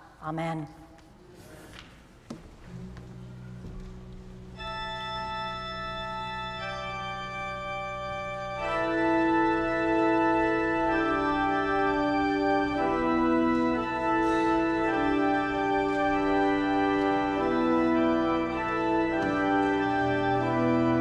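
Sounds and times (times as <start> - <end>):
church organ chords: 2.7 - 21.0.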